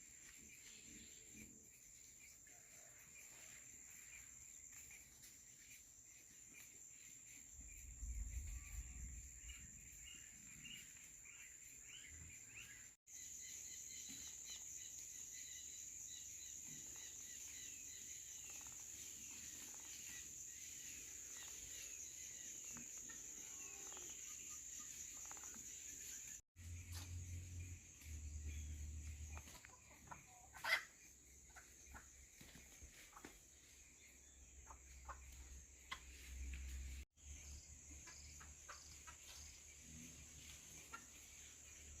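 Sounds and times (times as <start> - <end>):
bird chirps: 4.1 - 30.8.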